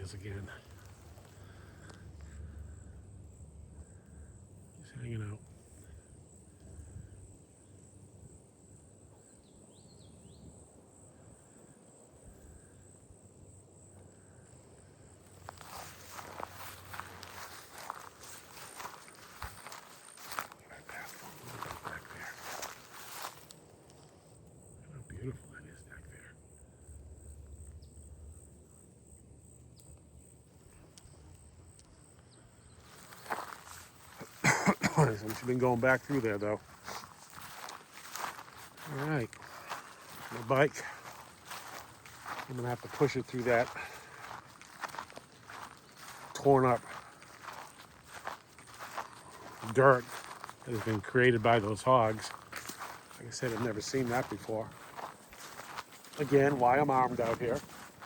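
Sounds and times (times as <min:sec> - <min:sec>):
footsteps on trail: 0:00.0 - 0:02.9, 0:14.4 - 0:24.3, 0:32.6 - 0:58.0
insects chirping: 0:00.0 - 0:58.0
swamp ambience: 0:00.0 - 0:58.0
faint ticks: 0:30.7 - 0:32.4.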